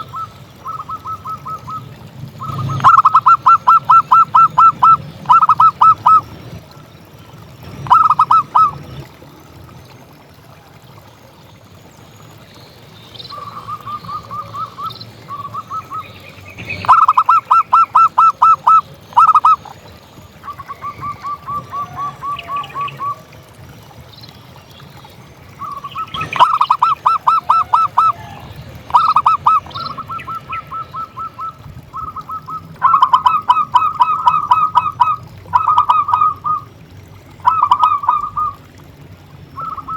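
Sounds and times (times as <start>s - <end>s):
dove calling staccato notes: 0.0s - 6.4s, 7.6s - 9.0s, 13.3s - 19.8s, 20.4s - 23.2s, 25.6s - 36.8s, 37.4s - 38.7s, 39.6s - 39.9s.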